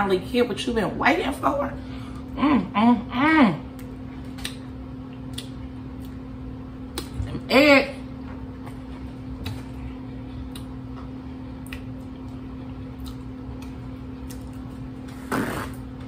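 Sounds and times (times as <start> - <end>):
steady low hum: 0.0 - 16.0
person chewing wetly: 3.7 - 6.3, 9.4 - 15.0.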